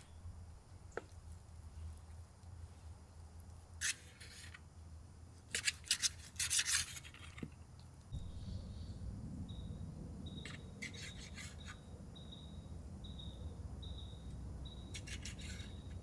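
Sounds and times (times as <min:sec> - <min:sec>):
low steady hum: 0:08.1 - 0:16.0
low rumble: 0:08.2 - 0:14.9.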